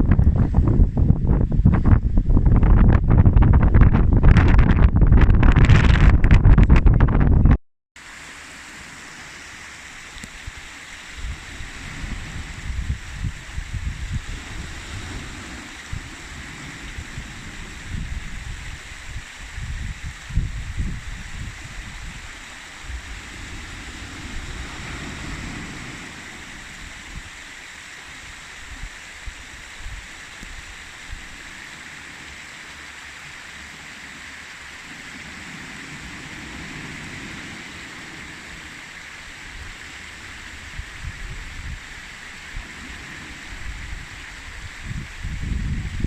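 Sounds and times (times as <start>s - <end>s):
wind buffeting microphone: 0.0s - 7.6s, 10.3s - 27.5s, 39.4s - 46.0s
steady rushing hiss: 8.0s - 46.0s.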